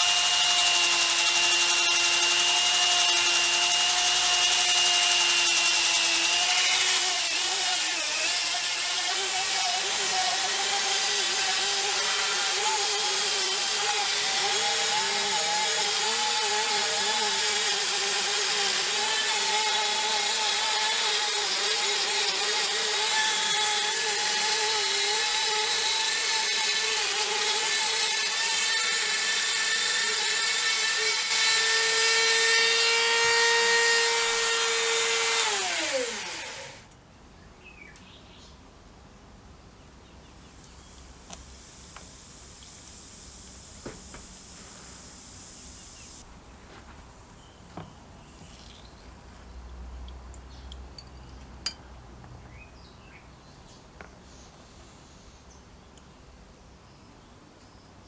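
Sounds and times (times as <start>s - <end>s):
power tool motor whining: 0.0s - 36.8s.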